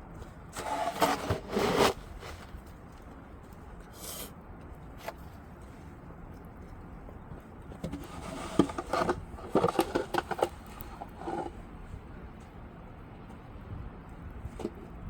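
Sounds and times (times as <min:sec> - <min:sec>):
scraping: 0:00.5 - 0:02.7.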